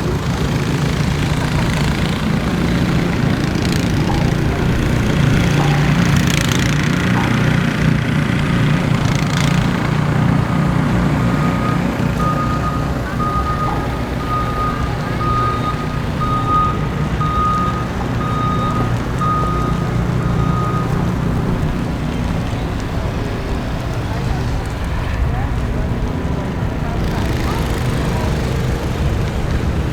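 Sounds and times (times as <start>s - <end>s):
low engine rumble: 0.0s - 29.9s
reversing alarm beeping: 10.8s - 21.2s.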